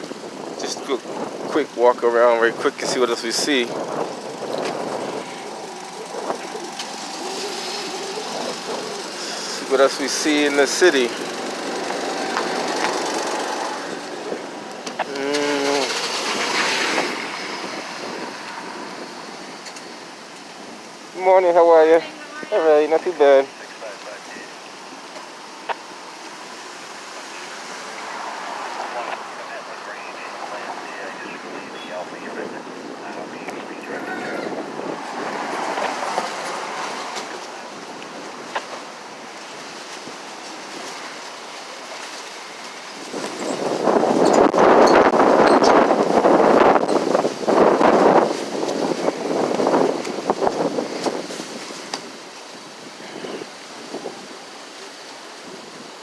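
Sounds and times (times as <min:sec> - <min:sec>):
street noise: 0:00.0 - 0:56.0
traffic: 0:00.0 - 0:56.0
wind: 0:00.0 - 0:56.0
distant voice: 0:01.6 - 0:16.3, 0:27.3 - 0:37.9.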